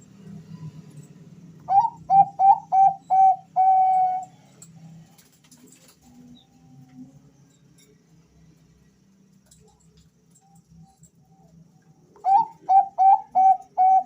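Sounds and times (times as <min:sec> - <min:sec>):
dove cooing: 0:01.7 - 0:04.4, 0:12.2 - 0:14.0.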